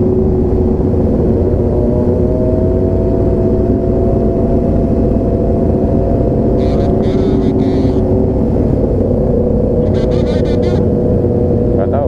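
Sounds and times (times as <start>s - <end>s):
motorcycle engine cruising: 0.0s - 12.0s
wind rumble on microphone: 0.0s - 12.0s.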